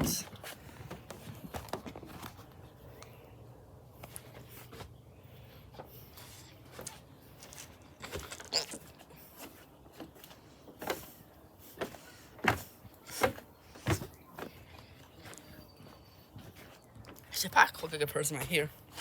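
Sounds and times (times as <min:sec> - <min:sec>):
footsteps knocking and scuffing: 0:00.0 - 0:02.6, 0:09.4 - 0:17.2.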